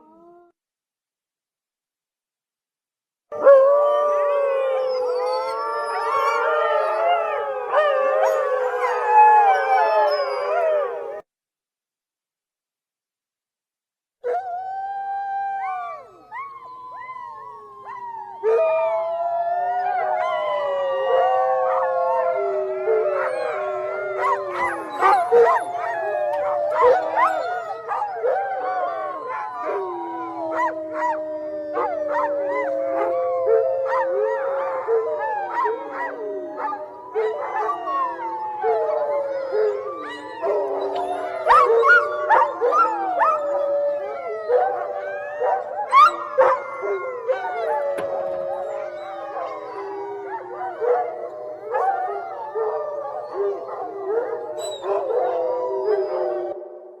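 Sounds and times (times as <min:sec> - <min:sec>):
wolves howling: 0:03.3 - 0:11.2, 0:14.2 - 0:57.0
wolves yipping: 0:23.1 - 0:28.4, 0:40.0 - 0:43.6, 0:45.4 - 0:46.6, 0:53.2 - 0:55.4.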